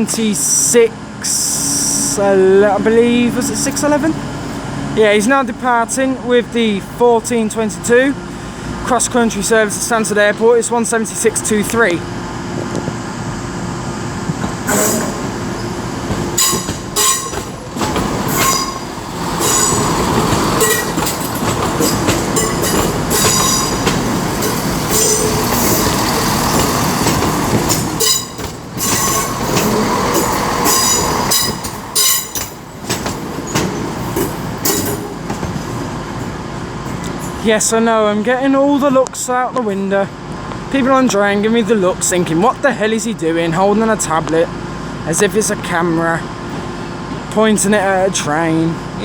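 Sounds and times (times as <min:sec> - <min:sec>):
diesel train pulling out: 0:00.0 - 0:49.0
wheels clicking over rail joints: 0:14.3 - 0:37.4
wheel squeal: 0:14.7 - 0:32.6.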